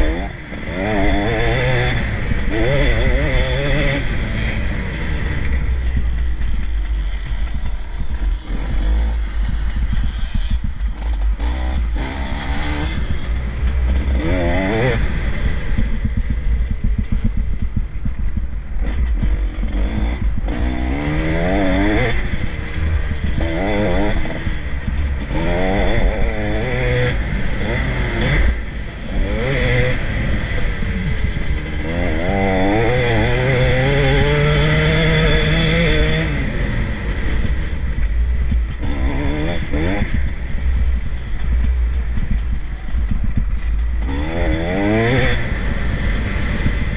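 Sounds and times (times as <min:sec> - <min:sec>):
motocross bikes revving past: 0:00.0 - 0:06.0, 0:07.0 - 0:16.4, 0:18.8 - 0:37.9, 0:44.0 - 0:46.9.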